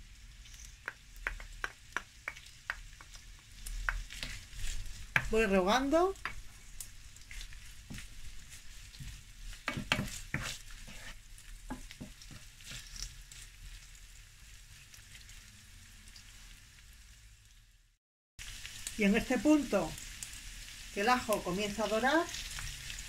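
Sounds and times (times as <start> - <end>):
food sizzling in a frying pan: 0.0 - 23.0
wooden spoon scraping a pan: 0.4 - 13.8.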